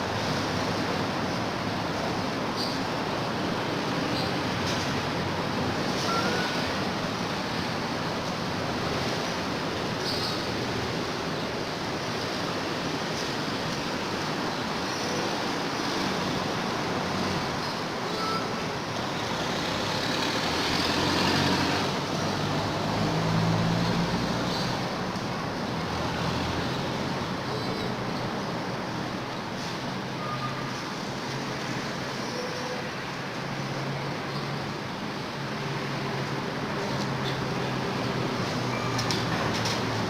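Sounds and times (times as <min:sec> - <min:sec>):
road traffic noise: 0:00.0 - 0:40.0
passing vehicle engine: 0:19.0 - 0:27.4.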